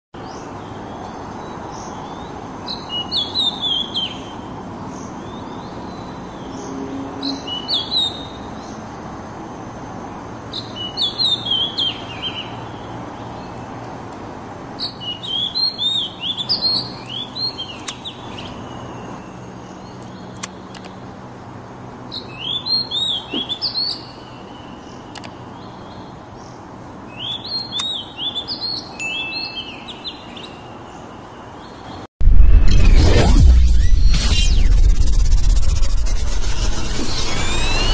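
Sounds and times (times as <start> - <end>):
steady low hum: 32.2 - 37.9.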